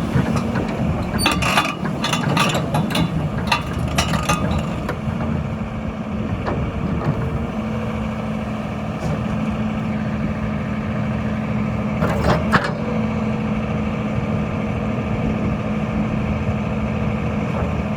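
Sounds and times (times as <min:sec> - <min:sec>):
excavator diesel engine running: 0:00.0 - 0:17.9.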